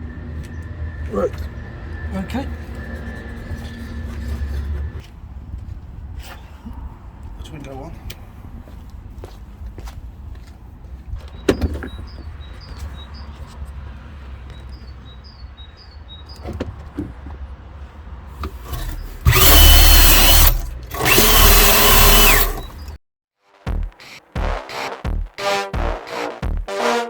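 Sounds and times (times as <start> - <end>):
electric power drill whining: 18.5 - 23.0.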